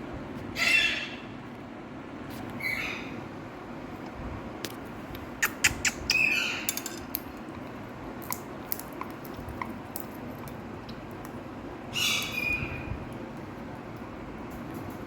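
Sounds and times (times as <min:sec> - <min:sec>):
parakeet harsh calls: 0:00.5 - 0:01.3, 0:02.6 - 0:03.2, 0:11.9 - 0:12.9.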